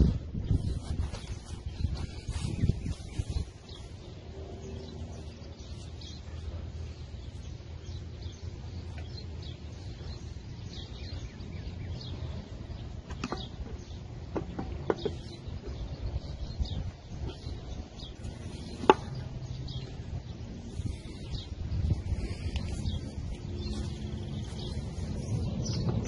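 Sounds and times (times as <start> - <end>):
birds chirping: 0.0 - 26.0
low background rumble: 15.2 - 26.0.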